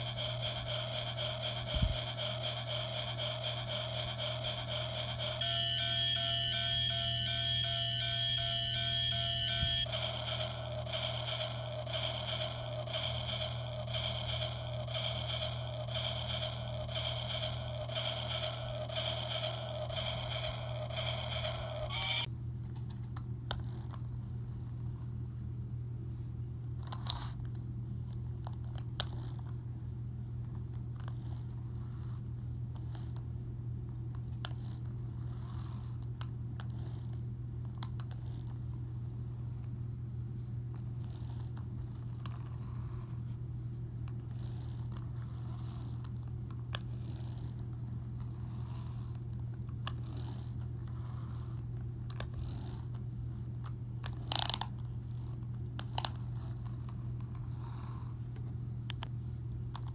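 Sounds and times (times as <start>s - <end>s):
steady low hum: 0.0s - 22.3s.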